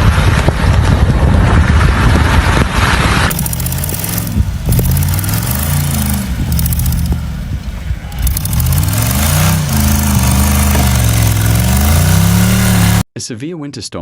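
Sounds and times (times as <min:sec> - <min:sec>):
engine revving: 0:03.3 - 0:13.1.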